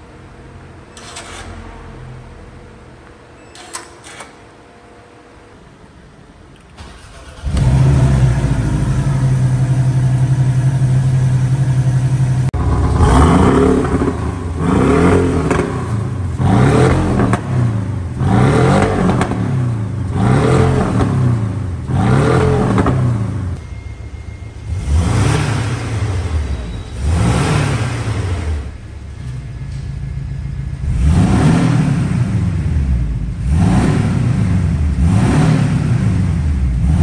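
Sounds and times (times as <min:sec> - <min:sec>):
car engine starting and idling: 0:00.0 - 0:37.0
car engine revving: 0:06.8 - 0:23.6, 0:24.6 - 0:37.0.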